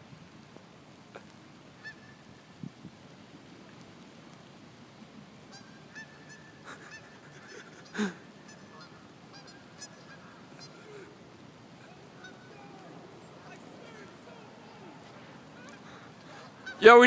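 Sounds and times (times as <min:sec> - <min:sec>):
pouring rain: 0:00.0 - 0:17.0
geese honking: 0:01.8 - 0:02.3, 0:05.5 - 0:11.2, 0:11.8 - 0:17.0.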